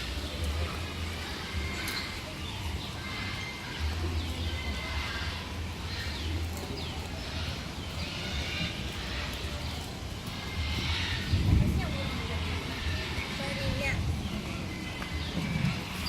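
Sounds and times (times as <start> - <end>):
birds calling: 0.0 - 16.0
steady low rumble: 0.0 - 16.0.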